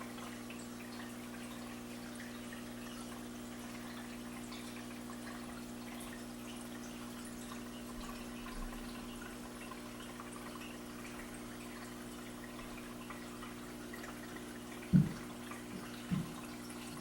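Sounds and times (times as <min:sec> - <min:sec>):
water trickling and dripping: 0:00.0 - 0:17.0
dull low thumps: 0:14.9 - 0:15.2.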